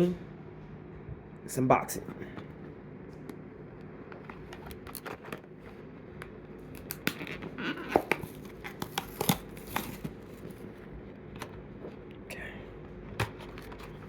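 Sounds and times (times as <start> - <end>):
plastic packaging being opened: 4.2 - 5.6, 6.6 - 10.8.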